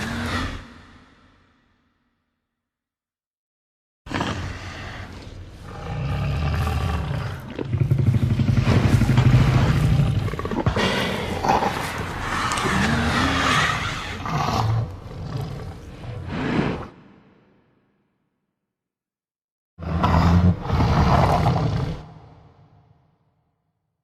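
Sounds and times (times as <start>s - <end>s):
dinosaur roar: 0.0s - 1.5s, 4.1s - 17.0s, 19.8s - 22.8s.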